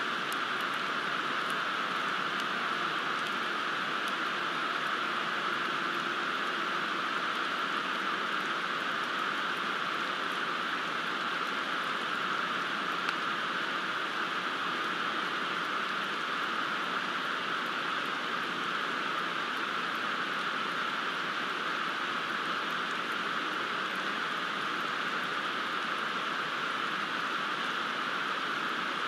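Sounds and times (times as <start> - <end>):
steady rain falling: 0.0 - 29.0
faint drip ticks: 0.2 - 3.4, 4.0 - 4.9.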